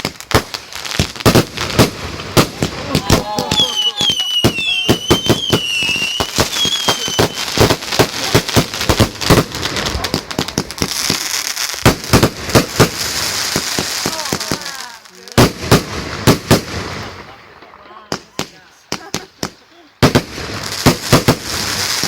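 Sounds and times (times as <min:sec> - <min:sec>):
loud firework bangs: 0:00.0 - 0:22.0
whistling rockets: 0:01.3 - 0:11.2.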